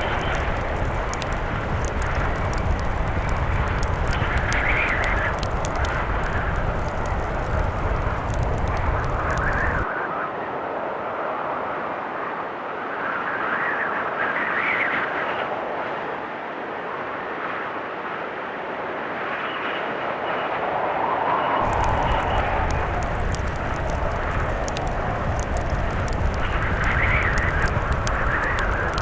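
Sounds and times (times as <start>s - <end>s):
blizzard wind gusting: 0.0s - 9.9s, 21.6s - 29.0s
wood fire crackling: 0.0s - 9.9s, 21.6s - 29.0s.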